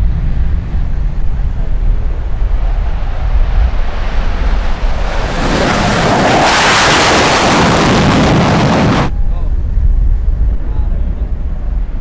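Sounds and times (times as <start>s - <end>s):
wind buffeting microphone: 0.0s - 12.0s
fighter jet engine roar: 0.1s - 9.2s.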